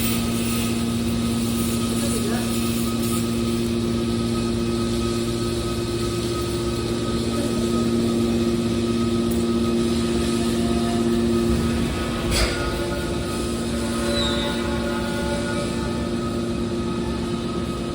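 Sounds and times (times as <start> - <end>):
can baler machine hum: 0.0 - 17.9.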